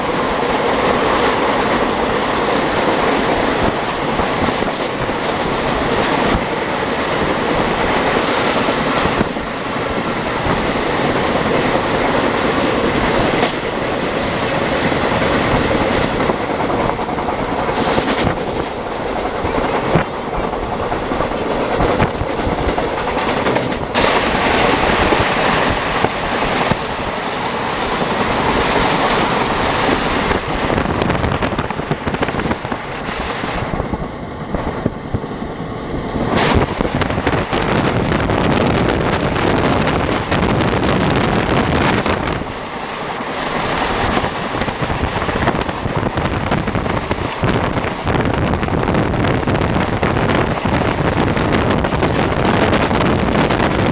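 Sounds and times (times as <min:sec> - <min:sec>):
train wheels rumbling on rails: 0:00.0 - 0:53.9
high hiss: 0:42.4 - 0:45.6.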